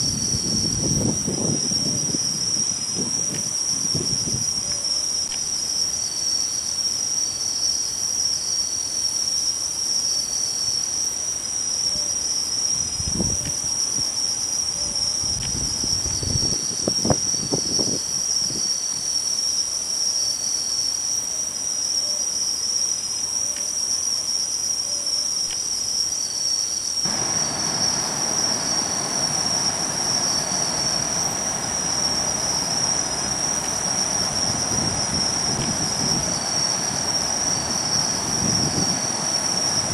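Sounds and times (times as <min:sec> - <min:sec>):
faint repeated insect chirps: 0:00.0 - 0:39.9
insect high-pitched trill: 0:00.0 - 0:39.9
wide rushing noise: 0:27.1 - 0:39.9.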